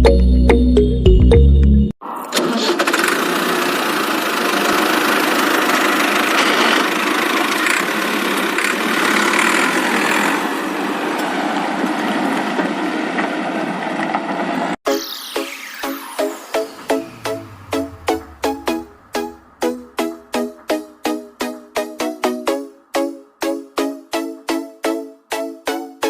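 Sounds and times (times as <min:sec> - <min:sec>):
music: 0:00.0 - 0:02.0, 0:14.9 - 0:26.0
small motor running: 0:02.9 - 0:10.5.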